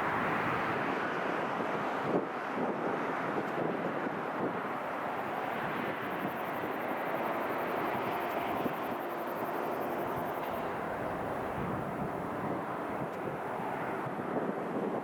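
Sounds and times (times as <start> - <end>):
jet engines rushing: 4.4 - 14.2.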